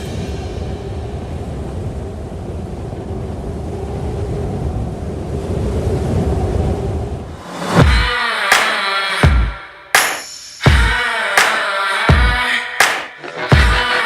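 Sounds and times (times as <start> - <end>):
wind buffeting microphone: 0.2 - 7.4.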